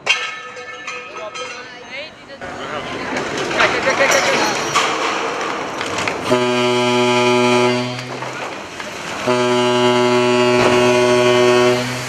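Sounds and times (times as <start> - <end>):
ship's horn blasts: 6.2 - 12.0.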